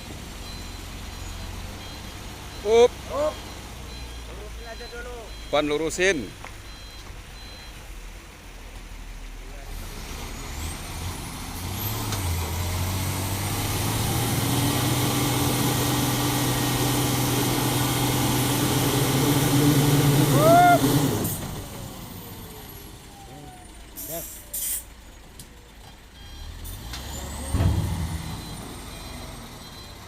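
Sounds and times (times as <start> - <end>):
truck engine revving: 9.6 - 25.4, 26.1 - 30.0
air hiss: 24.0 - 24.9.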